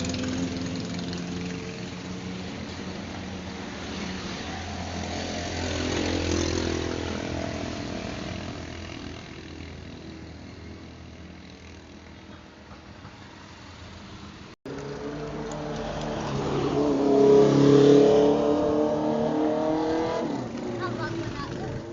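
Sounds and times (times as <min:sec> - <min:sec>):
vehicle engine passing by: 0:14.7 - 0:21.9.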